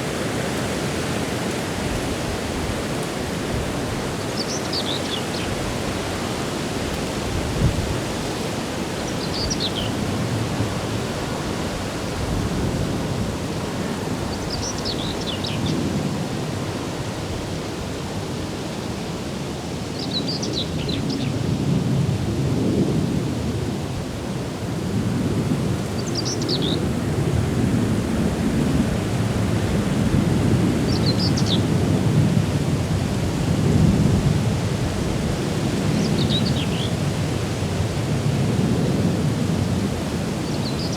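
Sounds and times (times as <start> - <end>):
wind rushing and gusting: 0.0 - 17.6
songbird singing: 4.2 - 5.8, 9.0 - 10.0, 14.3 - 15.8, 25.9 - 26.9, 30.8 - 31.7, 35.9 - 37.0, 40.4 - 40.9.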